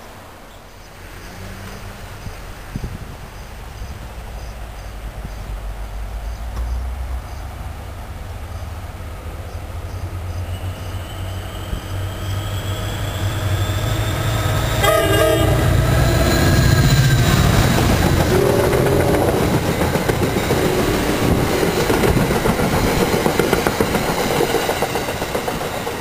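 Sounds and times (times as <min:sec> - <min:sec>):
locomotive engine rumble: 0:01.0 - 0:26.0
train horn blast: 0:14.2 - 0:19.8
train wheels clattering over rail joints: 0:16.2 - 0:26.0.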